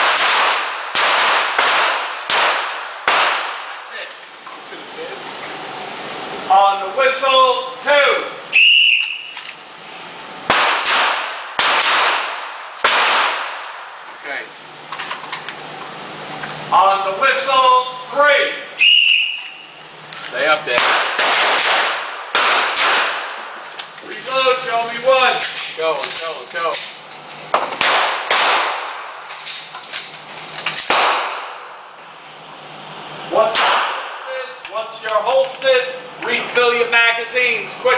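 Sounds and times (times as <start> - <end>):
handgun shots echoing: 0.0 - 3.7, 10.5 - 13.7, 20.7 - 23.4, 27.6 - 29.1, 30.8 - 31.7, 33.5 - 34.2.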